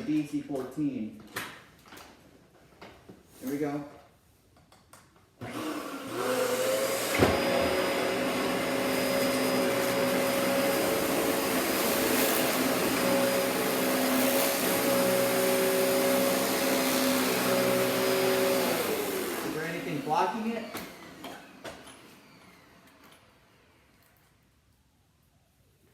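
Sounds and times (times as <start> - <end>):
vacuum cleaner motor whining: 5.4 - 23.8.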